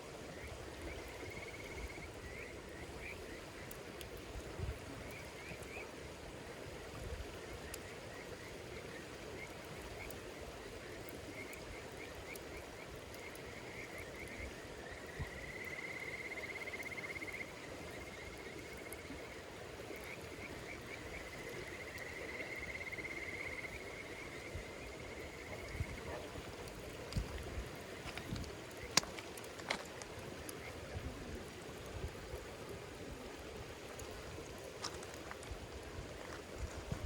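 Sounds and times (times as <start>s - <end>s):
faint campfire crackles: 0.0s - 37.0s
low hiss: 0.0s - 37.0s
insect chirping and trilling: 0.2s - 3.8s, 7.4s - 29.5s.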